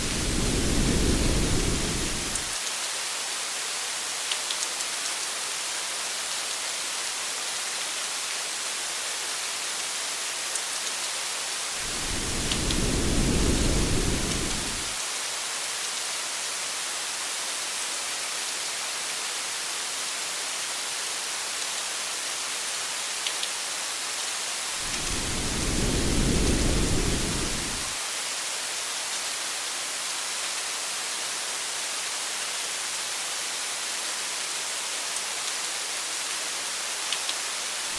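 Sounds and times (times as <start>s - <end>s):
thunder rolling: 0.0s - 2.5s, 11.8s - 15.0s, 24.8s - 28.0s
rain hiss: 0.0s - 37.9s.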